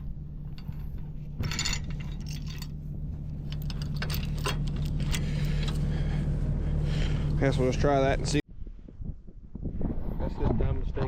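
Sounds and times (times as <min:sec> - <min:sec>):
diesel engine running: 0:00.0 - 0:08.4
metallic clicks and rattles: 0:00.4 - 0:02.8, 0:03.4 - 0:05.8.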